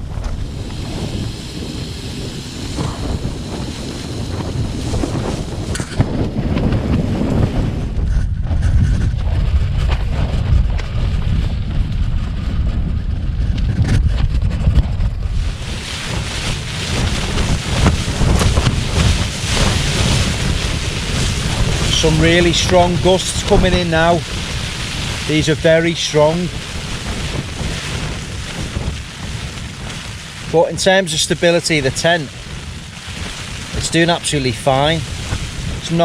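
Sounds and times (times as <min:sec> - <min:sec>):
wind rumble on microphone: 0:00.0 - 0:36.0
tent fabric rippling and snapping: 0:13.4 - 0:36.0.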